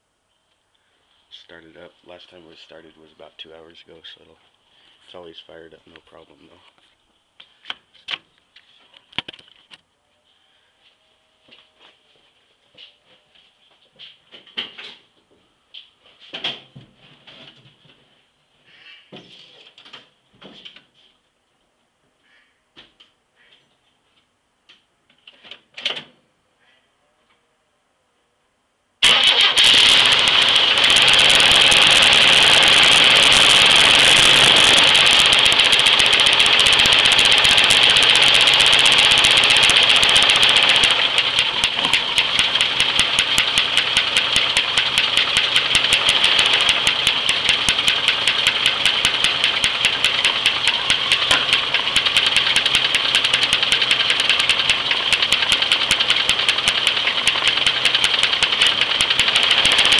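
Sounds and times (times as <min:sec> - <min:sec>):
car engine with rhythmic knock: 0:29.0 - 0:59.9.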